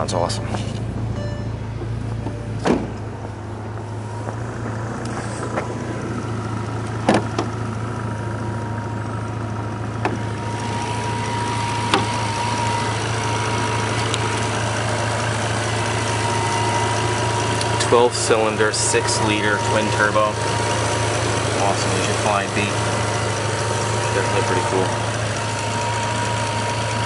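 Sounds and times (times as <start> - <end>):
car engine idling: 0.0 - 27.0
thin whine: 10.0 - 27.0.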